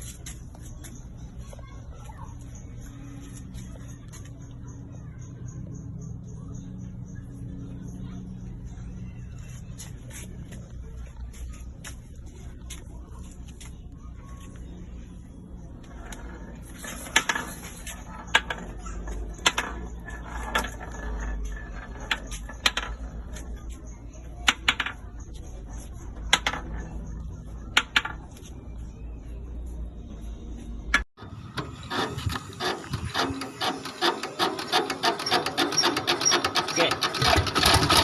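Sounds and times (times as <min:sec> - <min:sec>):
sharp knocks and rubbing: 0:15.8 - 0:23.8, 0:31.0 - 0:38.0
engine clattering: 0:31.2 - 0:38.0.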